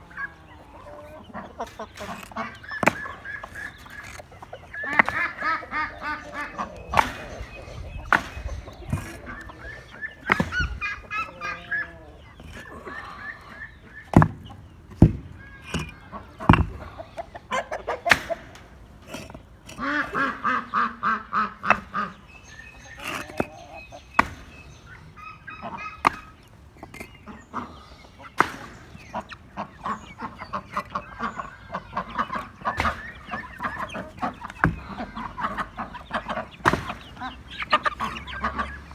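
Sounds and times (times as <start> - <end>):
ducks quacking: 0.0 - 14.6, 15.4 - 38.9.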